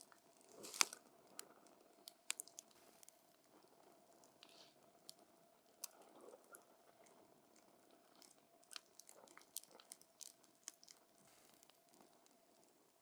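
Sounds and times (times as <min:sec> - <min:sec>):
campfire crackling: 0:00.5 - 0:01.5.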